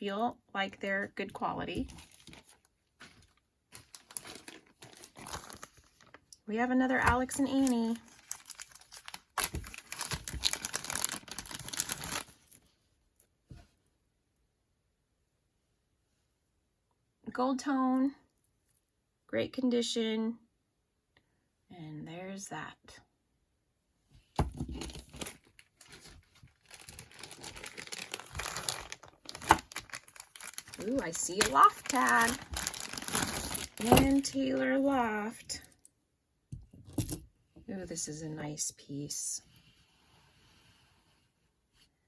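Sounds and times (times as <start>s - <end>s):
wrapping crinkling and rustling: 1.4s - 12.8s, 24.7s - 35.8s.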